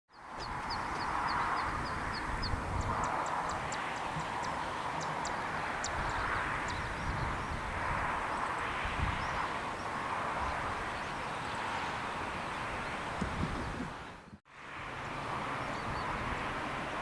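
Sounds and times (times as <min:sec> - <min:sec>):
small bird chirping: 0:00.1 - 0:07.5.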